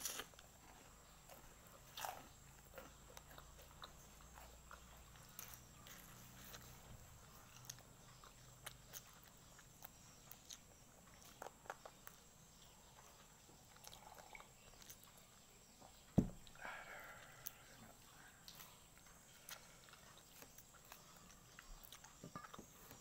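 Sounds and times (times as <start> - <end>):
chewing and lip-smacking: 0.0 - 16.6, 17.4 - 23.0
sharp thump: 16.2 - 16.5.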